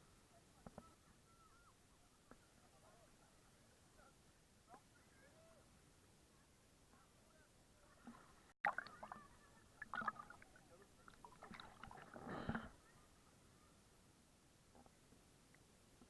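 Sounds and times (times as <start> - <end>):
water splashing and sloshing: 7.8 - 12.6.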